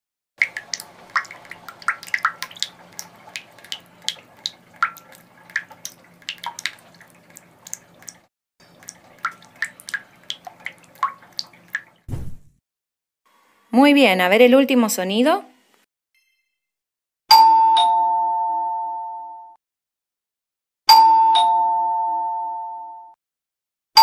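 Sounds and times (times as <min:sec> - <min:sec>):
water dripping from a tap: 0:00.4 - 0:12.0.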